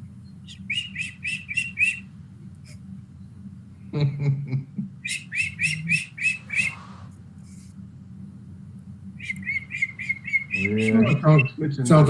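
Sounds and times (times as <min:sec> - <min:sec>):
bird chirping: 0:00.2 - 0:02.1, 0:05.0 - 0:07.1, 0:09.2 - 0:11.7.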